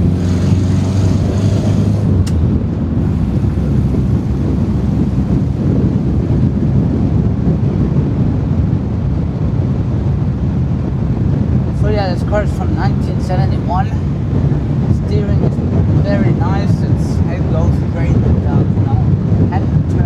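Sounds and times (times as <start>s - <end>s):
car engine running: 0.0s - 19.0s
heavy wind noise: 0.0s - 20.0s
road rumble: 0.0s - 20.0s.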